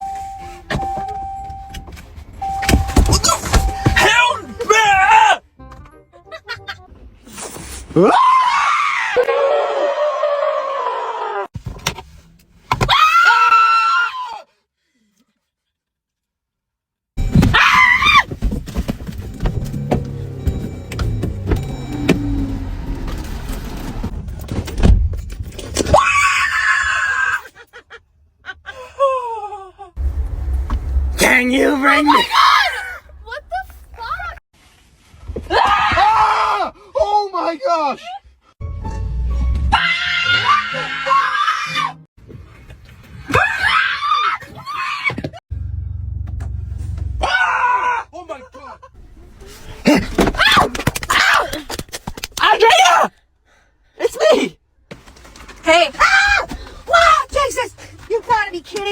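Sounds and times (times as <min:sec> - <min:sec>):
person screaming: 0:31.2 - 0:33.0.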